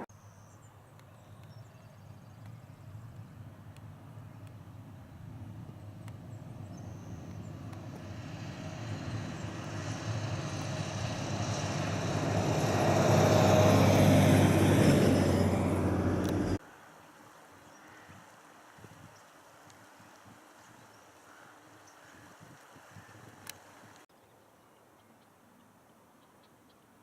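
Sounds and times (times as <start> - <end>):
faint outdoor background: 0.0 - 27.0
vehicle engine approaching: 3.0 - 16.6.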